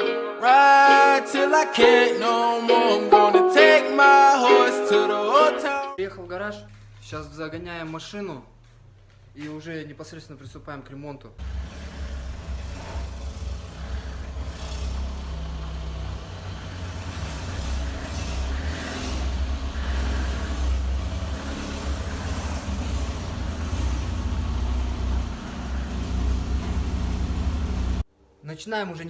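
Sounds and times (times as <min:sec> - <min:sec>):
car engine rumbling: 0:10.3 - 0:28.1.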